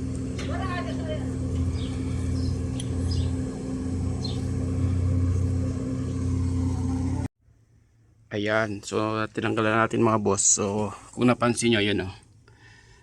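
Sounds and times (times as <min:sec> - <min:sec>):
large engine idling: 0:00.0 - 0:07.3.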